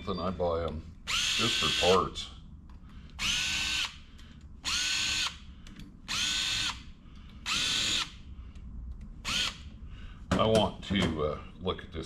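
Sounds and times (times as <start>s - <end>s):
electric drill motor whine: 1.1s - 2.0s, 3.2s - 4.0s, 4.6s - 5.4s, 6.1s - 6.9s, 7.5s - 8.2s, 9.2s - 9.6s.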